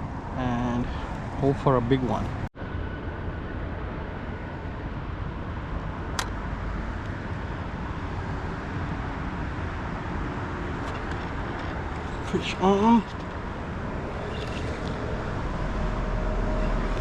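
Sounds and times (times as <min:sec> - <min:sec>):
low outdoor rumble: 0:00.0 - 0:17.0
sharp click: 0:06.1 - 0:06.4.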